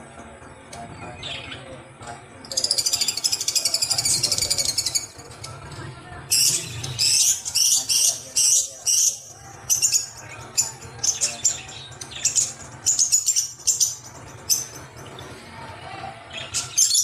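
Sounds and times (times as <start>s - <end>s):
bird chirping: 6.3s - 17.0s.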